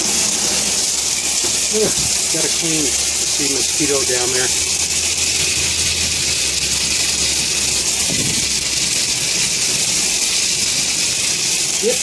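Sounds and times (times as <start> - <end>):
shower head spraying water: 0.0 - 12.0.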